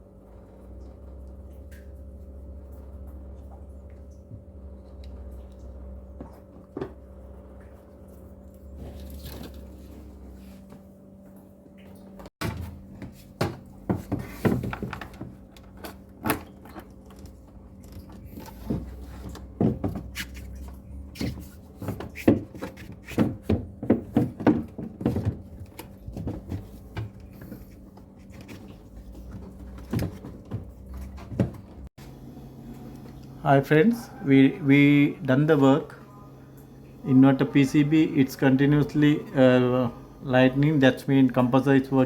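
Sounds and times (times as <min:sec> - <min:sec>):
steady low hum: 0:00.0 - 0:42.0
appliance parts knocking and clattering: 0:12.4 - 0:31.9.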